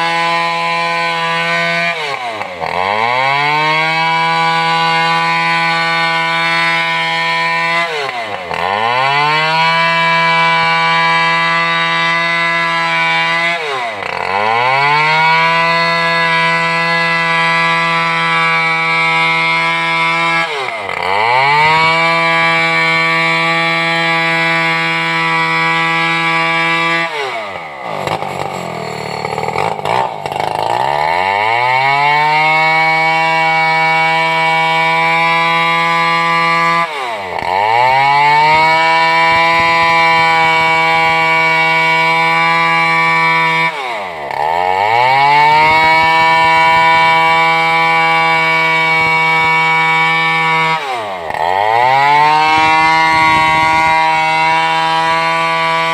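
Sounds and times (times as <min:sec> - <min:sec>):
chainsaw cutting log: 0:00.0 - 0:55.9.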